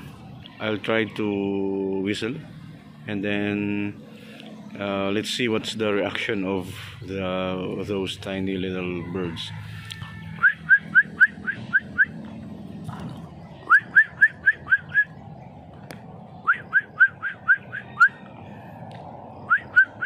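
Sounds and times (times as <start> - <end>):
person whistling rising notes: 10.4 - 12.2, 13.7 - 15.2, 16.4 - 18.2, 19.4 - 20.0.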